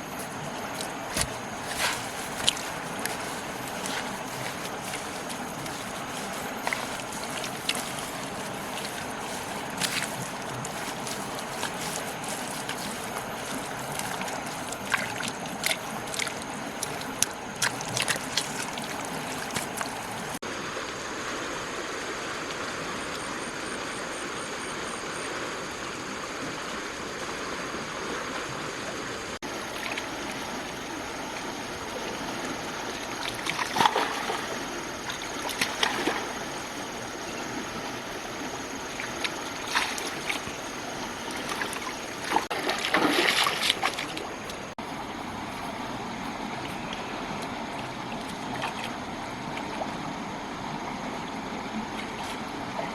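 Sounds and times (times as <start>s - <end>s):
water splashing: 0.0s - 20.4s, 29.4s - 50.0s
water rushing: 0.0s - 21.3s, 29.4s - 52.9s.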